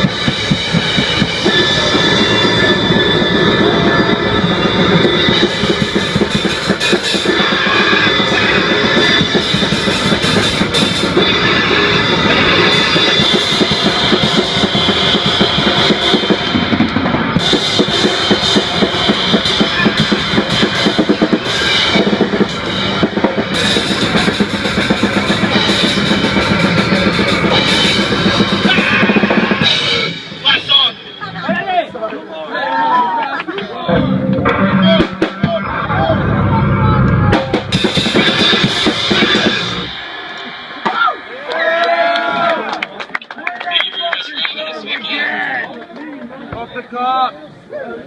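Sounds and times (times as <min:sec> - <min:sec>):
fast drumming with cymbals: 0:00.0 - 0:31.7, 0:37.2 - 0:41.5
noise-rock band playing loudly: 0:00.0 - 0:31.8, 0:33.9 - 0:43.1.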